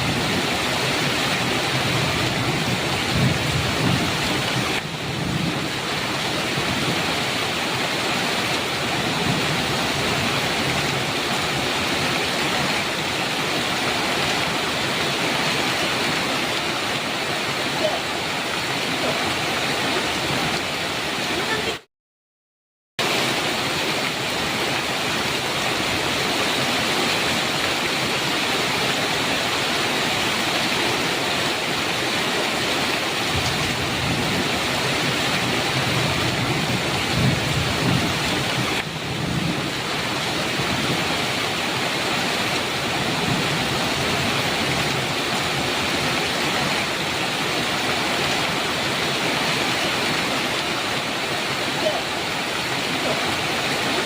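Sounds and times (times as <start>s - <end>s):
heavy rain on a metal roof: 0.0s - 21.9s, 23.0s - 54.0s
low rumble of thunder: 1.8s - 7.0s, 33.3s - 41.1s.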